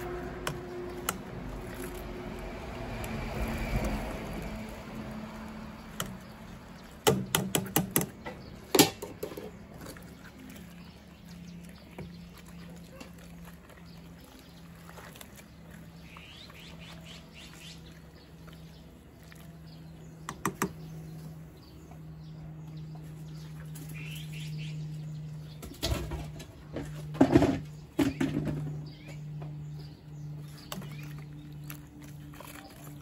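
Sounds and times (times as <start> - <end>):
small birds chirping: 3.4 - 33.0
knocks and rustling: 25.6 - 29.6.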